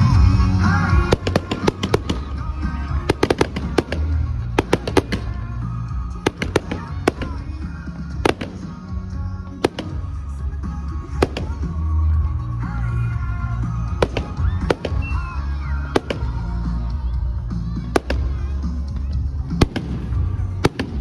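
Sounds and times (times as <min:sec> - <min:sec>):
fireworks bangs and crackles: 0:00.0 - 0:21.0
music playing: 0:00.0 - 0:21.0.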